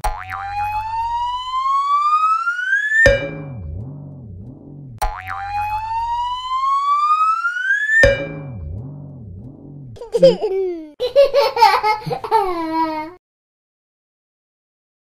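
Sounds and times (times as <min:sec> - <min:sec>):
wobbling drum-like effect: 0:00.0 - 0:01.5, 0:03.1 - 0:06.8, 0:08.0 - 0:10.0
baby giggling: 0:10.0 - 0:13.2.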